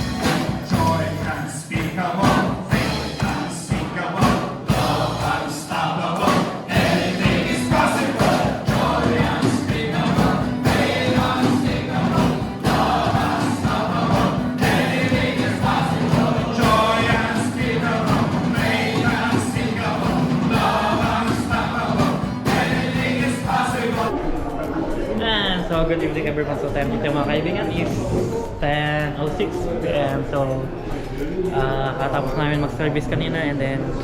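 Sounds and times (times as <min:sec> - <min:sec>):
live band music: 0:00.0 - 0:24.1
group singing worship song: 0:00.0 - 0:24.2.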